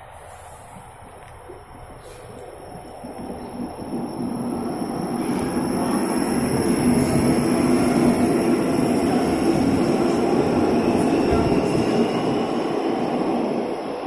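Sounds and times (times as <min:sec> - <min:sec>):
train wheels rumbling: 0:00.0 - 0:14.0.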